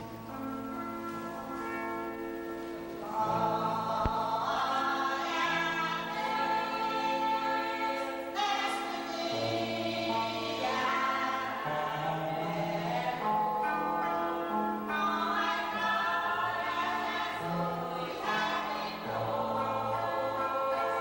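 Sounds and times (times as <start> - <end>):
choir singing a hymn: 2.9 - 21.0.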